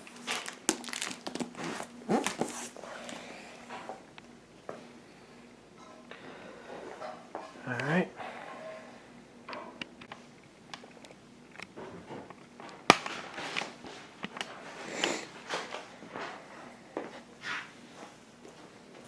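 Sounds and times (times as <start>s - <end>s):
packaging rustling: 0.0s - 3.6s.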